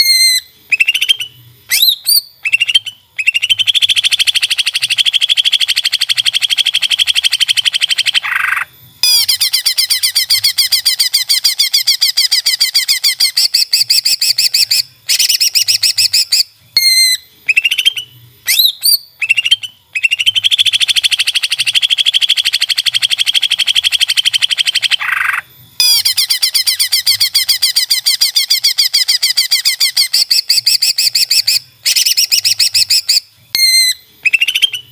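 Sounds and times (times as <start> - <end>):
bird singing rapid high notes: 0.0 - 34.9.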